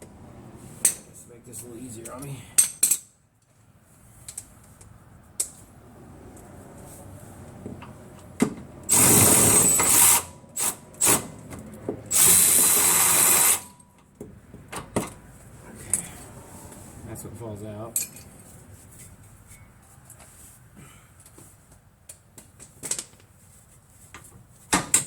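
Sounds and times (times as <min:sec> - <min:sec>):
power tool spinning bolt: 0:08.9 - 0:11.3, 0:12.1 - 0:13.7.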